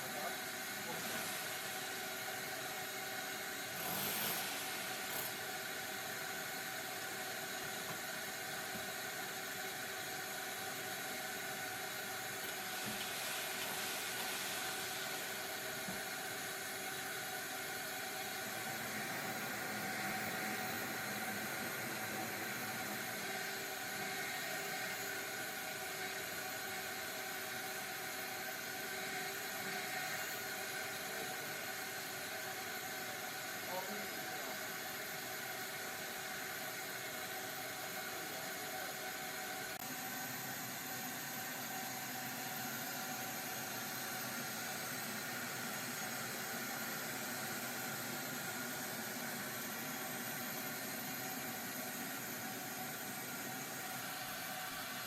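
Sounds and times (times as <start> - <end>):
motor whirring hiss: 0.7 - 2.0, 3.6 - 5.6, 12.2 - 16.2.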